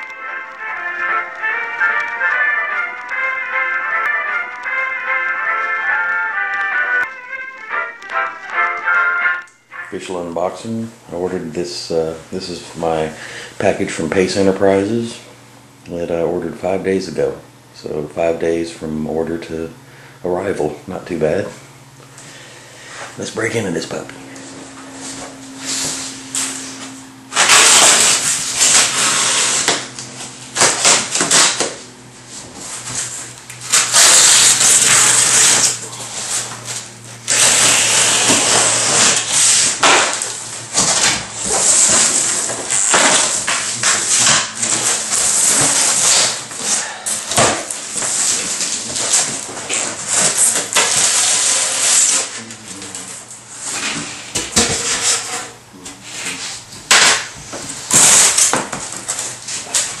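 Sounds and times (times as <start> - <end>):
packing tape rustling: 0.0 - 9.8, 27.3 - 52.4, 57.8 - 60.0
cardboard box being torn open: 27.3 - 29.8, 30.6 - 31.7, 37.3 - 46.4.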